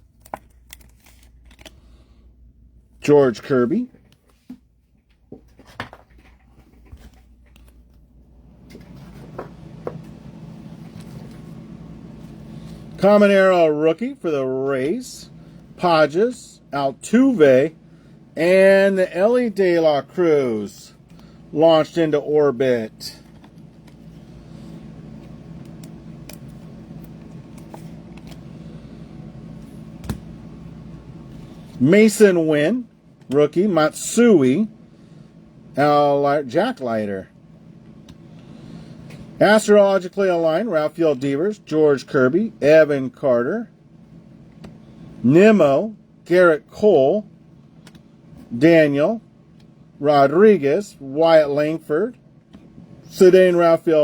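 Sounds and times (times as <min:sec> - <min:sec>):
cards clicking and rustling: 0:00.0 - 0:01.9, 0:25.2 - 0:28.5
low steady hum: 0:00.0 - 0:54.0.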